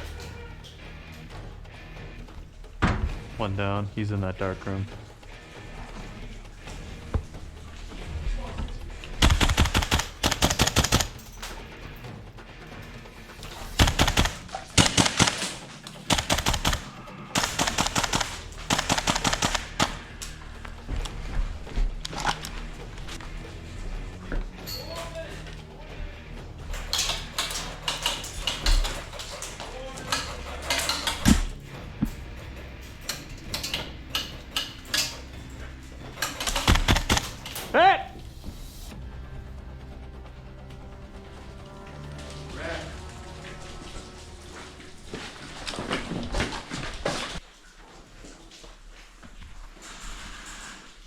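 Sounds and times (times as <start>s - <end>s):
airsoft rifles firing bursts: 9.2s - 11.3s, 13.6s - 20.2s, 26.8s - 31.5s, 36.2s - 37.6s
sharp clicks and knocks: 26.7s - 37.7s.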